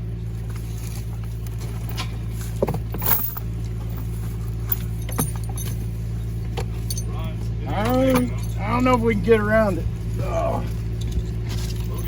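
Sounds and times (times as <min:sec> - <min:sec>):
engine idling: 0:00.0 - 0:12.0
metallic clinks and knocks: 0:01.5 - 0:06.0, 0:06.6 - 0:07.2, 0:07.8 - 0:08.7, 0:10.7 - 0:12.0.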